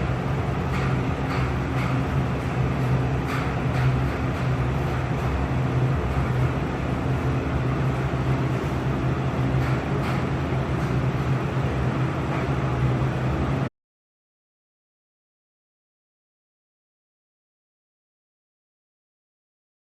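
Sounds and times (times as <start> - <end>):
exhaust hood fan running: 0.0 - 13.7.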